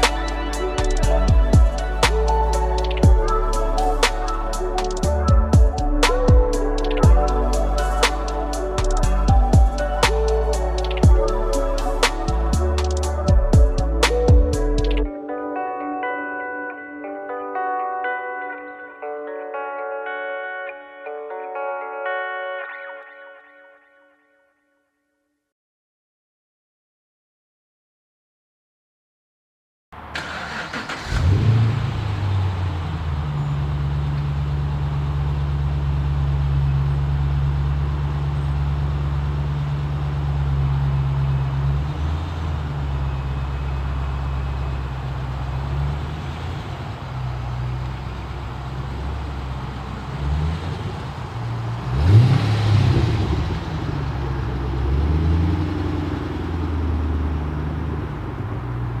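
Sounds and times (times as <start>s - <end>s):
car engine revving: 0.0s - 15.0s, 30.0s - 59.0s
car engine starting and idling: 0.0s - 15.1s, 30.0s - 59.0s.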